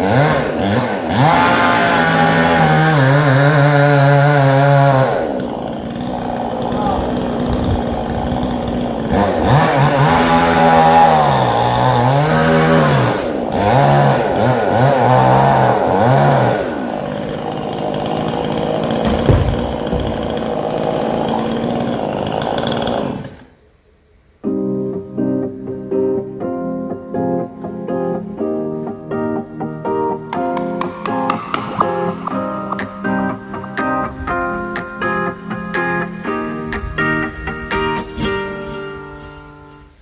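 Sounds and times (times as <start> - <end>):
chainsaw revving while cutting: 0.0 - 23.5, 30.4 - 34.4
keyboard music: 24.4 - 40.0.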